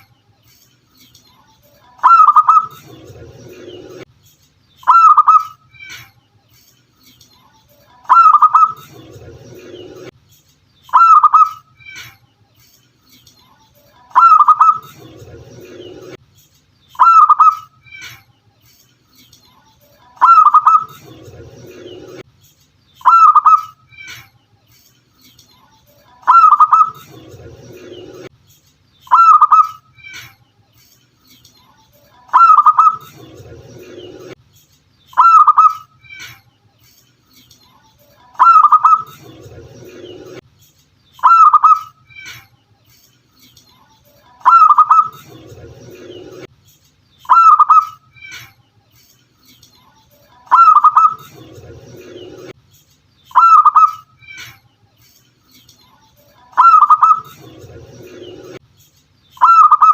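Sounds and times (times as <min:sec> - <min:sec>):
dove cooing: 0:20.2 - 0:21.0, 0:32.3 - 0:33.1, 0:38.4 - 0:39.2, 0:44.4 - 0:45.2.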